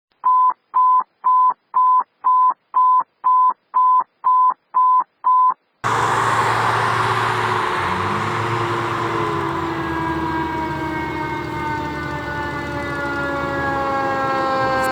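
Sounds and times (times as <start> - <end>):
fire engine rumble: 5.8 - 14.9
siren winding up: 5.8 - 14.9
street noise: 5.8 - 14.9.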